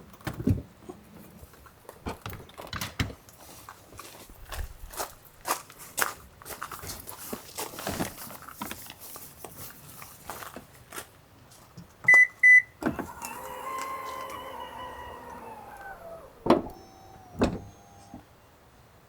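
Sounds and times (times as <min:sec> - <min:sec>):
electric motor humming: 0:12.8 - 0:18.2
handling clicks and rustles: 0:12.8 - 0:18.3.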